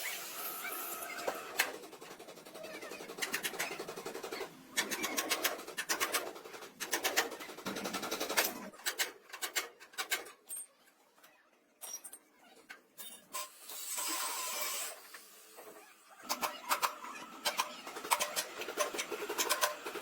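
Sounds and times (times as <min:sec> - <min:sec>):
rapid mechanical clicking: 0:01.1 - 0:10.3, 0:16.2 - 0:20.0.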